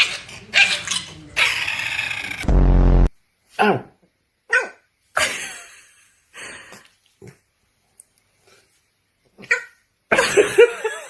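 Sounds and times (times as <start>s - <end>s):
dog snorting breaths: 0.0s - 2.4s
dog falling cry: 0.0s - 2.5s.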